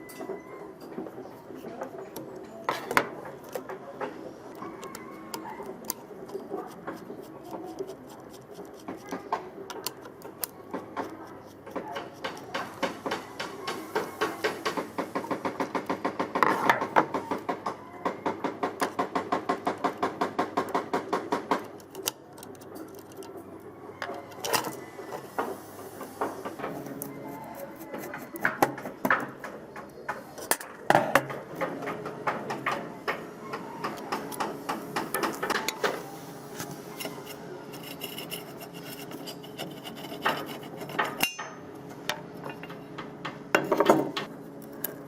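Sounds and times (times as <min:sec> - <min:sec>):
scattered clicks and knocks: 0:00.1 - 0:23.4, 0:27.8 - 0:36.0, 0:37.0 - 0:45.0.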